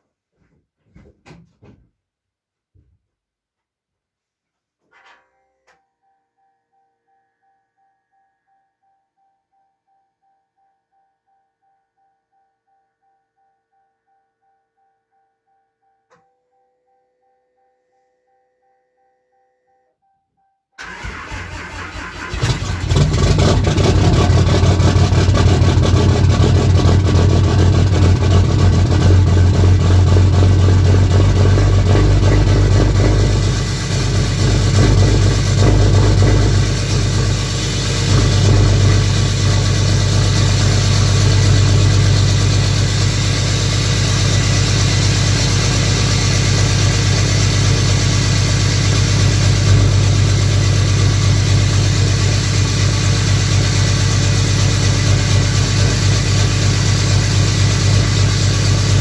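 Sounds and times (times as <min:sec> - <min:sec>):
starter motor cranking: 0:20.8 - 0:26.2
diesel engine idling loudly: 0:22.4 - 0:59.0.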